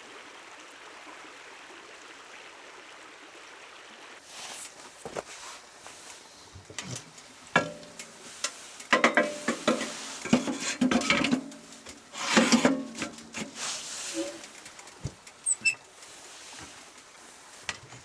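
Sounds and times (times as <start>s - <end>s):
metal cookware clattering: 6.8s - 15.8s.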